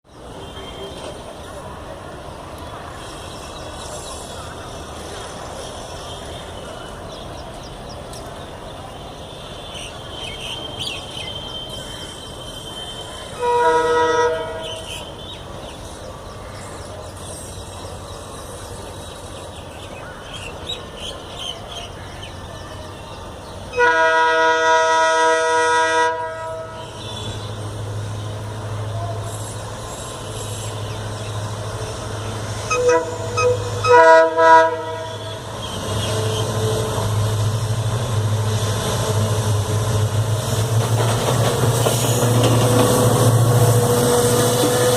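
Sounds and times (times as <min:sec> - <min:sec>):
locomotive horn blasts: 0:12.4 - 0:14.9, 0:23.7 - 0:27.6, 0:32.7 - 0:37.1
locomotive engine drone: 0:24.8 - 0:44.9.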